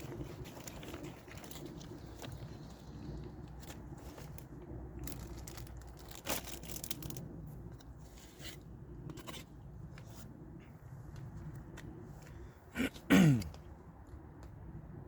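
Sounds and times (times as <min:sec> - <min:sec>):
wrapper crinkling: 0:03.6 - 0:07.2.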